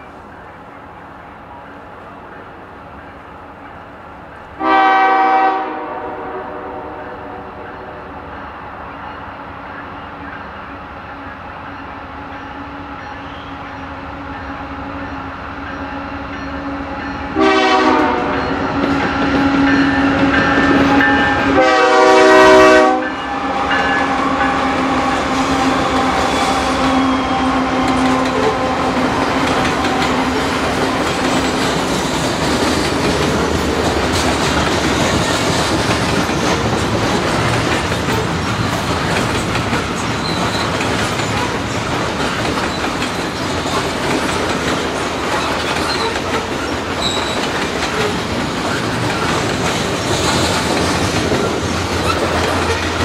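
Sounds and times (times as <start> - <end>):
diesel locomotive engines: 0.0 - 53.0
locomotive horn blast: 4.6 - 8.3, 17.3 - 30.3
train wheels rumbling and clacking: 7.6 - 53.0.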